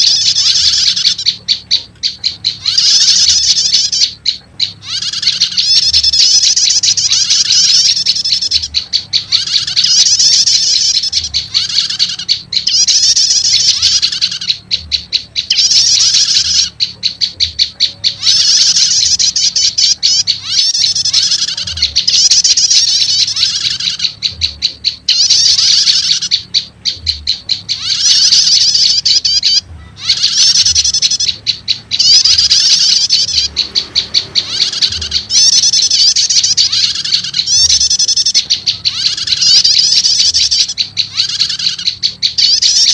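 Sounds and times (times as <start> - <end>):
fast ticking bird trills: 0.0 - 42.9
rapid high-pitched bird chirping: 0.0 - 42.9.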